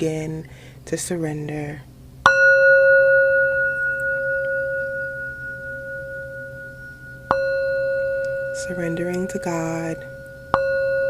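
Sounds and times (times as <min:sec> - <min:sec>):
struck singing bowl ringing: 0:02.2 - 0:11.0.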